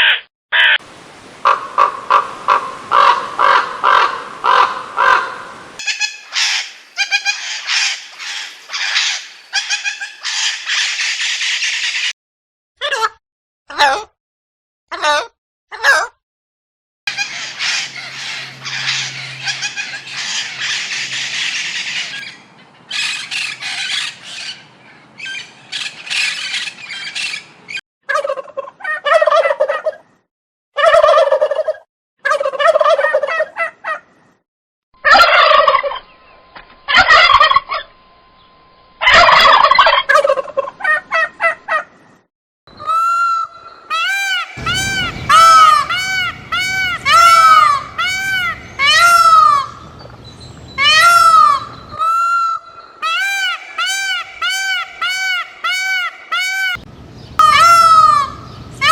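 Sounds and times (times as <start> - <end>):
turkeys gobbling: 1.4 - 11.1, 30.8 - 34.0, 35.0 - 36.1, 36.9 - 37.8, 39.0 - 41.8, 42.8 - 50.1, 50.8 - 56.8, 57.4 - 58.9.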